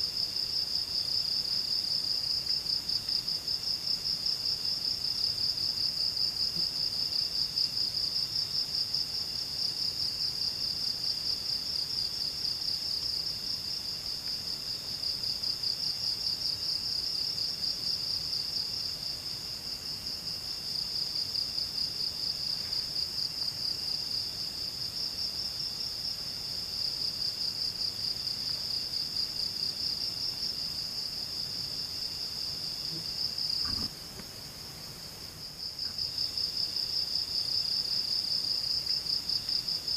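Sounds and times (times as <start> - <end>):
faint knock: 33.6 - 34.3.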